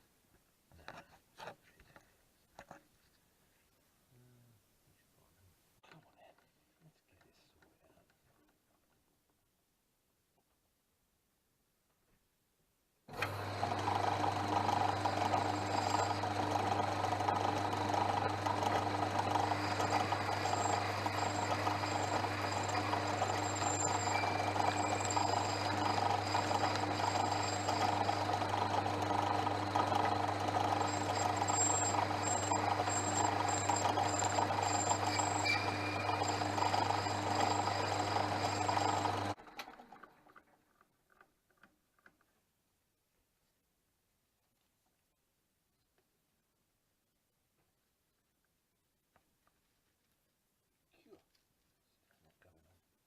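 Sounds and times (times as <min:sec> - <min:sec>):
lathe motor running: 0:13.1 - 0:39.7.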